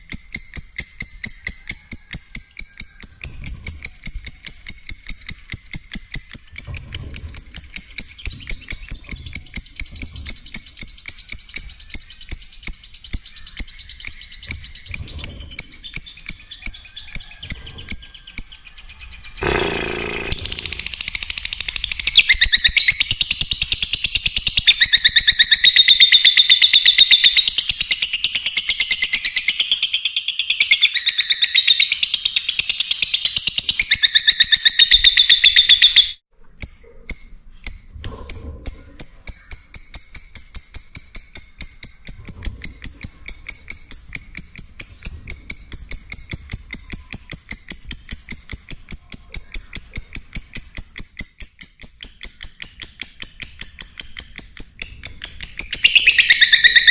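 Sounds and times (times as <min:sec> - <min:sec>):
lovebirds chirping: 0:00.3 - 0:56.9.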